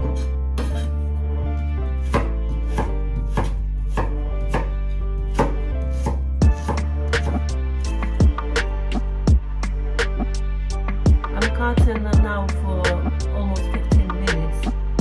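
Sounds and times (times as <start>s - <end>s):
soft background music: 0.0s - 15.0s
knife chopping on cutting board: 2.1s - 4.7s, 5.3s - 7.4s.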